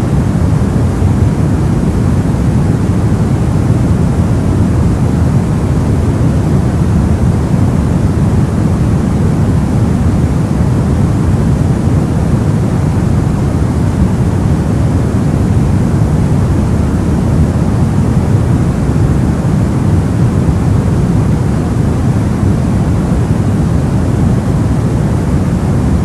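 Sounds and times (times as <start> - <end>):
steady deep white noise hiss: 0.0 - 26.0.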